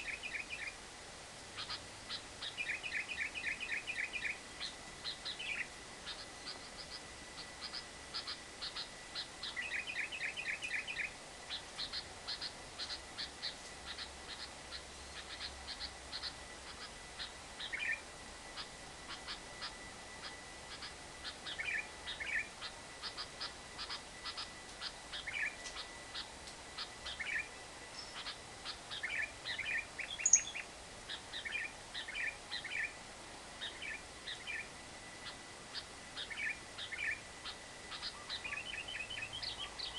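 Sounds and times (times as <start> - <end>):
bird chattering trill: 0.0 - 0.8, 1.6 - 33.0, 33.6 - 39.9.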